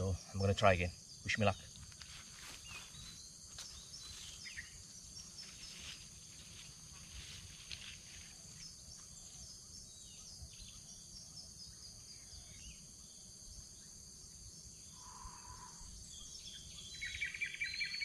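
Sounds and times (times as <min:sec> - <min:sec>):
high-pitched insect drone: 0:00.0 - 0:18.0
small bird chirps: 0:14.9 - 0:18.0.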